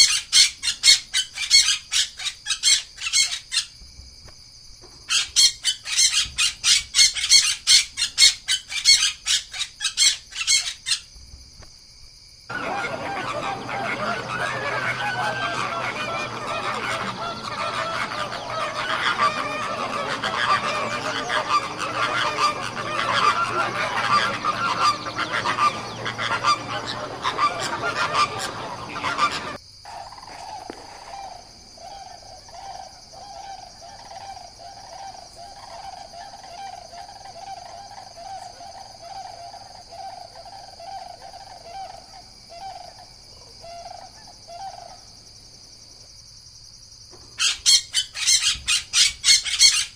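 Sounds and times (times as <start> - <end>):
repeated bird calls: 0.0 - 3.7, 5.1 - 11.1, 12.5 - 45.0, 47.4 - 49.9
flock of birds honking: 12.5 - 29.6.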